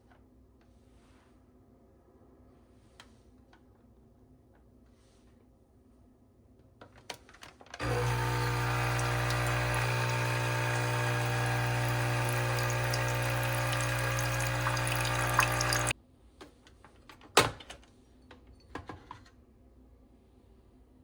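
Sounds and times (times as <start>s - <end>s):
coffee machine pump humming: 7.8s - 15.9s.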